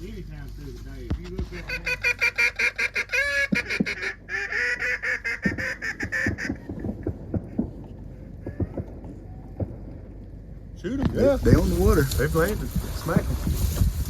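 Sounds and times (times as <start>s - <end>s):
duck quacking: 1.5s - 6.7s.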